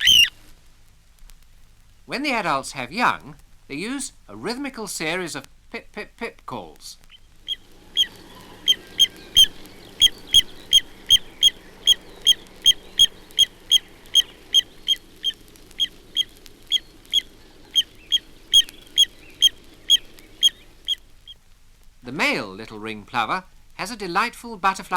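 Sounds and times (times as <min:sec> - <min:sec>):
plover pip calls: 0:00.0 - 0:00.4, 0:07.0 - 0:21.4.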